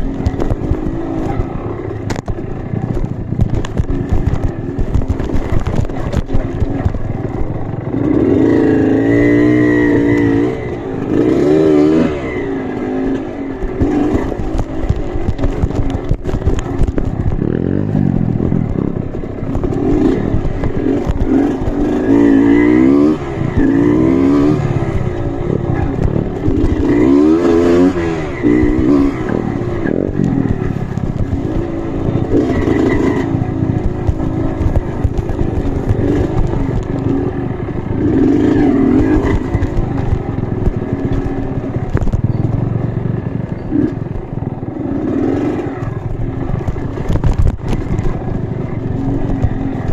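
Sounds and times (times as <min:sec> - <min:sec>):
clatter and scraping: 0:00.0 - 0:49.9
motorcycle engine revving: 0:00.0 - 0:49.9.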